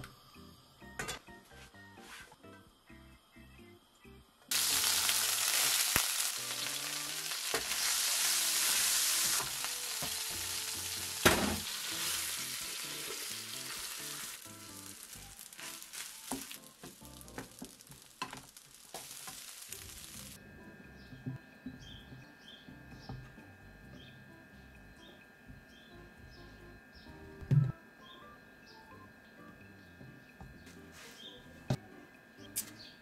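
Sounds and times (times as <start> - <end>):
garlic sizzling in hot oil: 4.5 - 20.4
rice knocking into pan: 11.2 - 11.8, 14.7 - 20.0.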